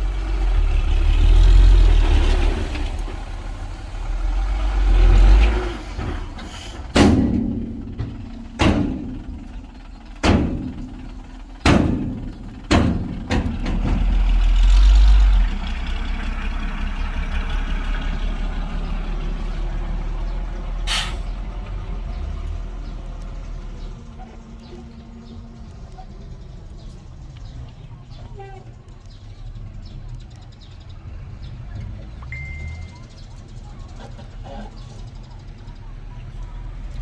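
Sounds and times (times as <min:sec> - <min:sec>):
diesel construction machinery running: 0:00.0 - 0:37.0
loud sharp bangs: 0:06.9 - 0:14.2.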